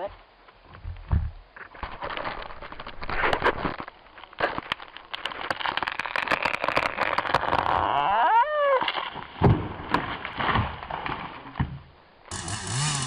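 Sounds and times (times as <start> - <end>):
tree creaking: 0.0 - 13.0
tree wood crackling and snapping: 0.4 - 13.0.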